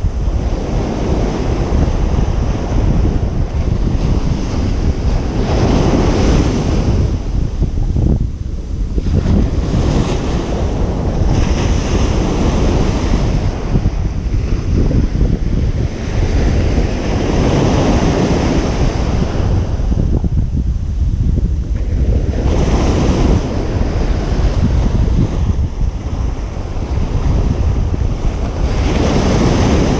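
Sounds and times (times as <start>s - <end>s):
ocean surf breaking on beach: 0.0s - 29.9s
wind buffeting microphone: 0.0s - 29.9s.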